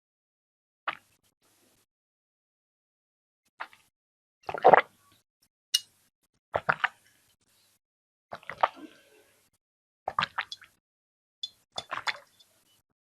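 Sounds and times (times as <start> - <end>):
person sipping and swallowing water: 8.3 - 9.2.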